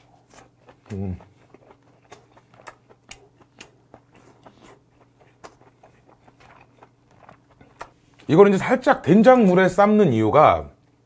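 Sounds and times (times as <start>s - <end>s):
close-up chewing with mouth clicks: 0.0s - 8.3s.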